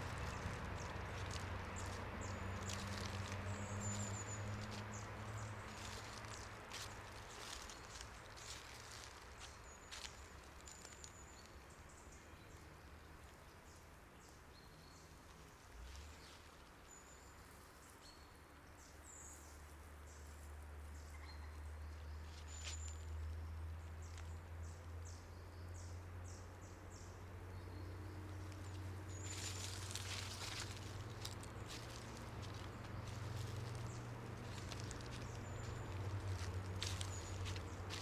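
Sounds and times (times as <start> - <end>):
low steady rumble: 0.0 - 9.2
faint birdsong chirps: 0.0 - 38.0.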